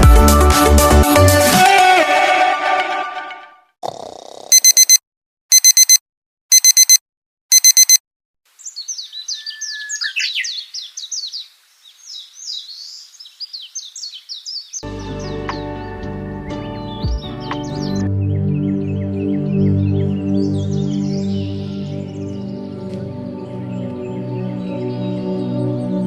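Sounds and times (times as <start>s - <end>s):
electronic alarm beeping: 4.5s - 8.0s
birds chirping rapidly: 8.5s - 16.0s, 16.6s - 25.9s.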